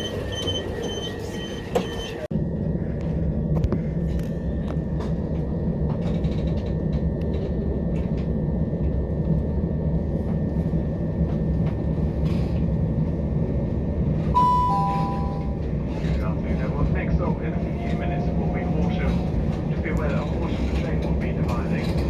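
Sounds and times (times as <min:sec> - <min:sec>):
train rumbling: 0:00.0 - 0:22.0
person making announcement: 0:14.4 - 0:15.6, 0:16.2 - 0:22.0
two-note falling chime: 0:14.4 - 0:15.6.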